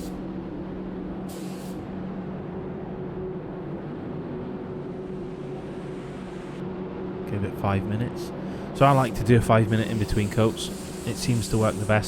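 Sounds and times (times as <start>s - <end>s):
spray gun hiss: 0.0s - 0.2s, 1.3s - 1.9s, 8.8s - 12.0s
workshop machinery hum: 0.0s - 12.0s.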